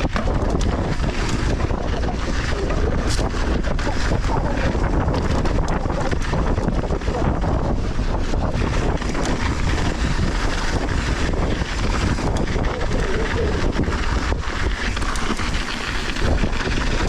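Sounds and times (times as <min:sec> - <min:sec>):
bike knocks and rattles: 0:00.0 - 0:12.8
tyres on loose dirt: 0:00.0 - 0:17.0
wind buffeting microphone: 0:00.0 - 0:17.0.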